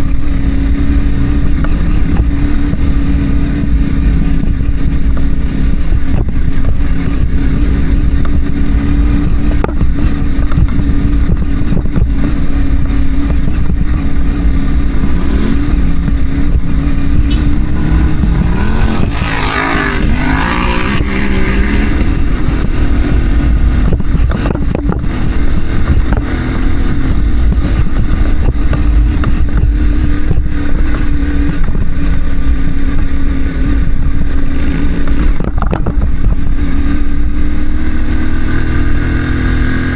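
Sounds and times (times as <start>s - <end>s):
motorcycle engine running: 0.0s - 39.9s
wind rumble on microphone: 0.0s - 39.9s
motorcycle passing by: 13.5s - 28.6s, 37.6s - 39.9s.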